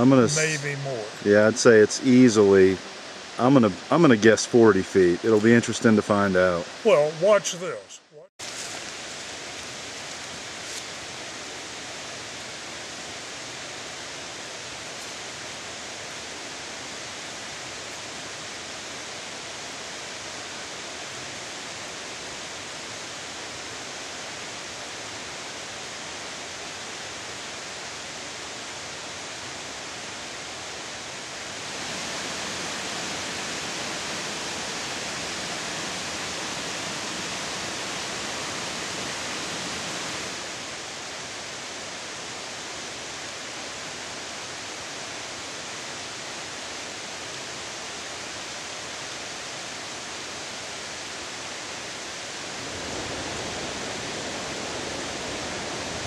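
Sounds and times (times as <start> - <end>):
steady rushing noise: 29.6 - 46.6.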